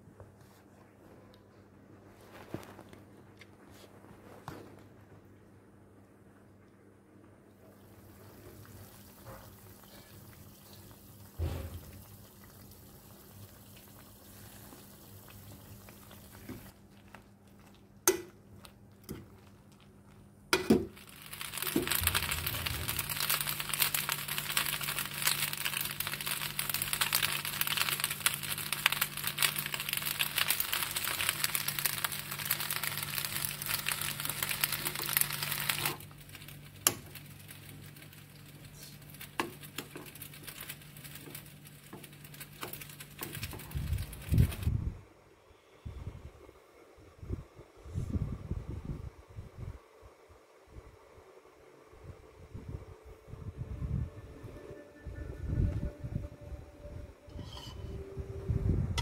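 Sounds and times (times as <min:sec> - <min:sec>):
pasta sizzling in a hot pan: 0:08.0 - 0:16.7, 0:20.8 - 0:44.7
steady low hum: 0:16.6 - 0:59.0.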